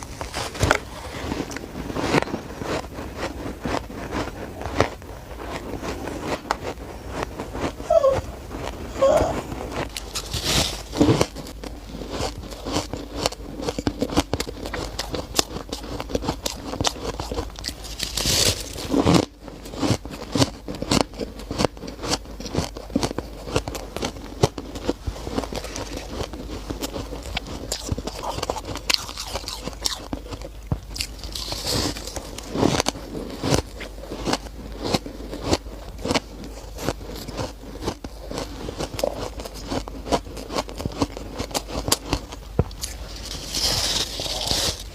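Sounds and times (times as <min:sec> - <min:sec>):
shaved ice being chewed: 0:00.0 - 0:44.9.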